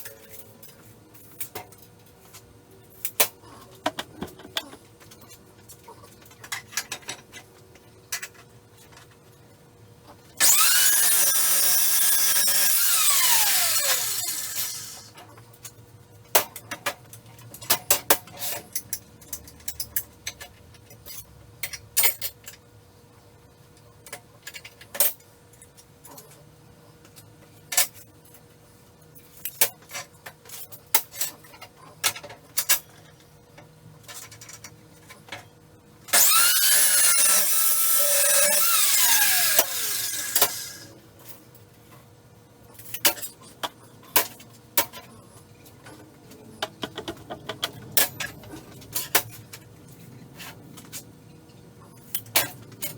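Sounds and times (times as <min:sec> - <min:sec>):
power tool cutting steel: 0:10.4 - 0:15.1, 0:36.1 - 0:40.9.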